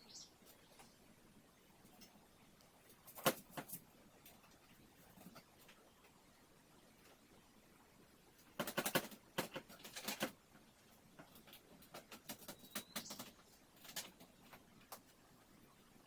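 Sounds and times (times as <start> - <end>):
clicks and rattles: 2.9 - 5.8, 8.4 - 10.4.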